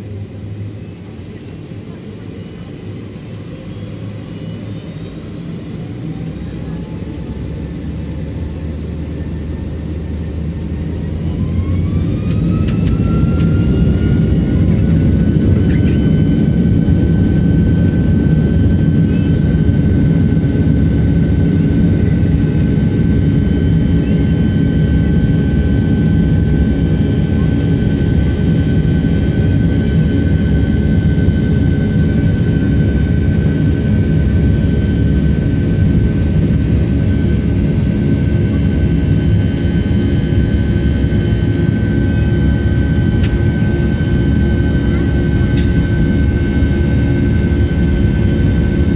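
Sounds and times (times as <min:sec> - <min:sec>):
jet engine whine: 0:00.0 - 0:48.9
jet engines rumbling: 0:00.0 - 0:48.9.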